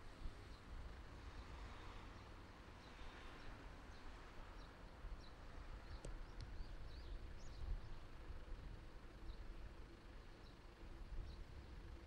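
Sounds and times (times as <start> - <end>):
small birds chirping: 2.1 - 8.2.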